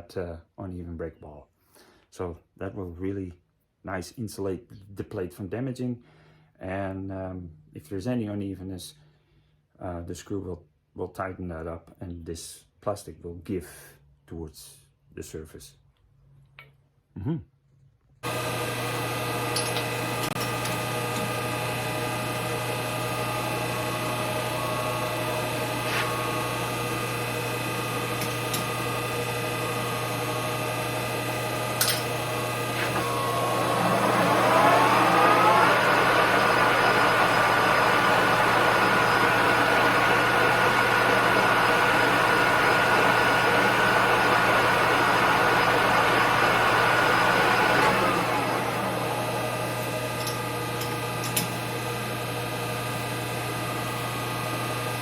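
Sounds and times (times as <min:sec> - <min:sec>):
lathe spindle whine: 0:18.2 - 0:55.0.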